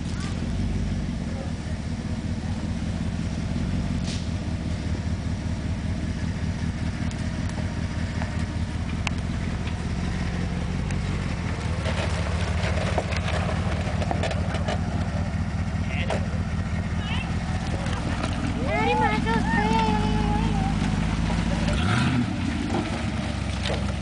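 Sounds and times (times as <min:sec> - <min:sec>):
truck engine rumbling: 0:00.0 - 0:24.0.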